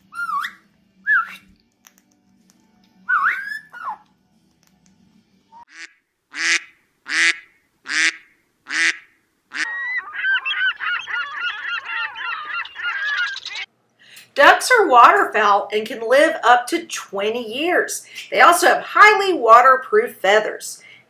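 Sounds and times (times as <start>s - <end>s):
waterfowl honking: 5.7s - 13.7s.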